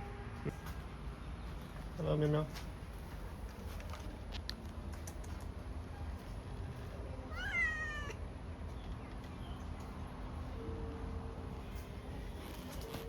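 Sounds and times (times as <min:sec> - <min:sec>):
cat meowing: 0:07.3 - 0:08.2.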